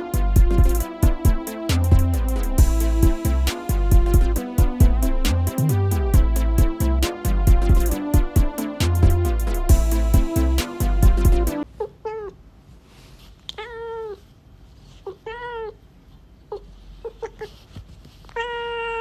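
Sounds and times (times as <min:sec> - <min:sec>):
electronic music: 0:00.0 - 0:11.6
cat meowing: 0:13.5 - 0:14.2, 0:15.1 - 0:15.8, 0:18.3 - 0:19.0.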